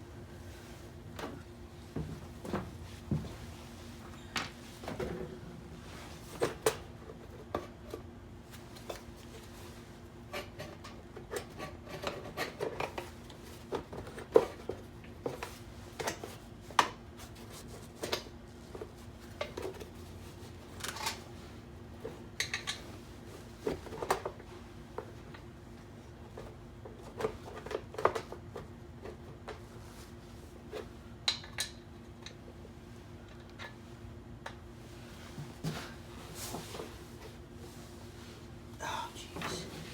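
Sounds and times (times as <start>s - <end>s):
steady low hum: 32.0s - 39.9s.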